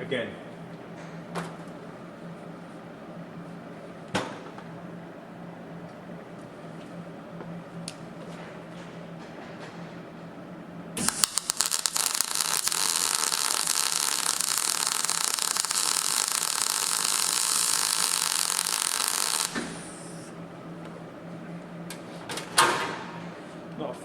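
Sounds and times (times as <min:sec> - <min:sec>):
welding machine hum: 0:07.6 - 0:22.0
welding arc sputtering cracks: 0:11.0 - 0:20.0
welding arc frying hiss: 0:11.0 - 0:20.4.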